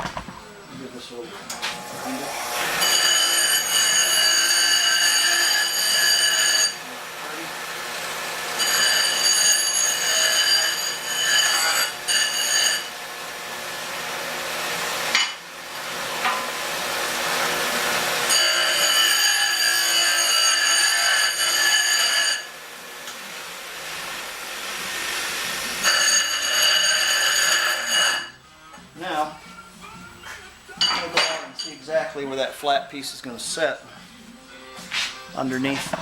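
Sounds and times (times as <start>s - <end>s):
saw grinding: 1.7s - 22.7s, 23.8s - 28.4s
saw screeching through metal pipe: 2.0s - 6.9s, 8.5s - 13.0s, 18.2s - 22.6s, 25.7s - 28.4s.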